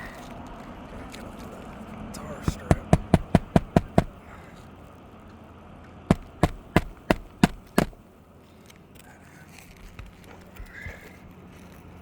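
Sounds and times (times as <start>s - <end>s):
hammer striking nails: 2.5s - 4.2s, 6.1s - 8.0s.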